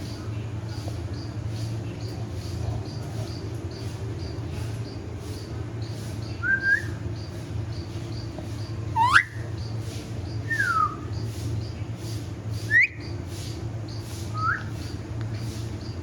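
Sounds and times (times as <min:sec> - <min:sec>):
steady low hum: 0:00.0 - 0:16.0
parrot whistling: 0:09.0 - 0:09.4.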